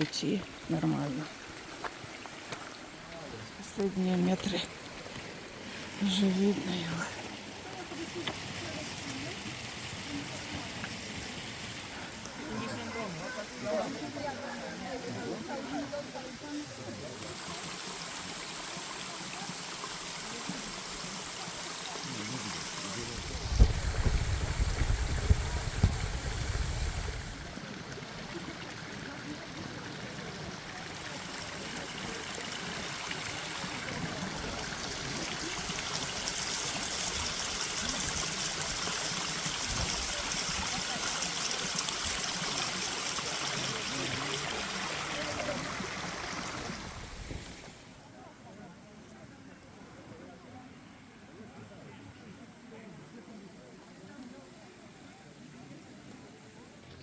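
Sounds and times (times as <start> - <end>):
waterfall rushing: 20.6 - 27.6
wind buffeting microphone: 23.2 - 27.5.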